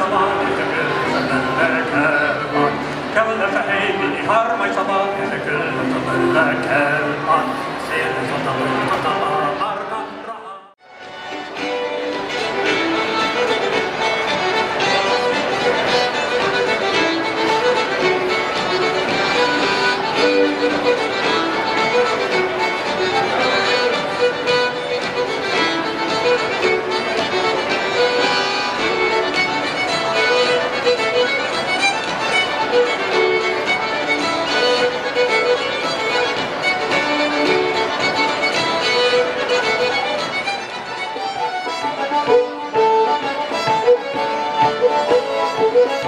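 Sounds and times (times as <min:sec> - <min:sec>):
fiddle melody: 0:00.0 - 0:46.0
band playing live music: 0:10.9 - 0:46.0.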